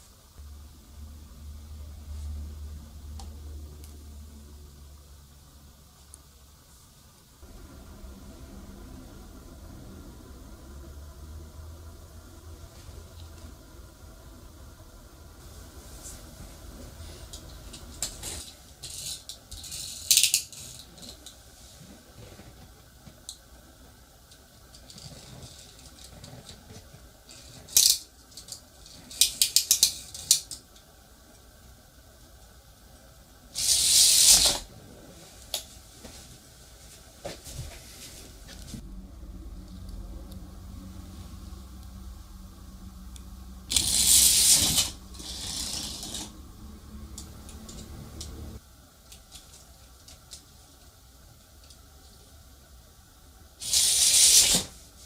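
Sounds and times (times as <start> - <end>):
low steady hum: 0.0 - 33.8, 34.4 - 53.6
toy mechanism rattling: 18.0 - 21.2, 43.7 - 46.3.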